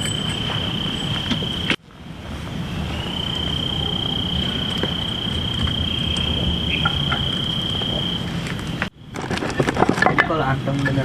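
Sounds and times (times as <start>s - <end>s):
cricket trilling: 0.0s - 1.8s, 2.6s - 11.0s
low steady rumble: 0.0s - 11.0s.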